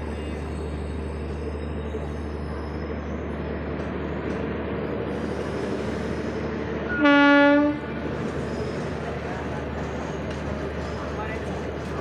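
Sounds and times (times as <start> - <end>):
train wheels rumbling on rails: 0.0 - 12.0
train horn blast: 6.9 - 7.9.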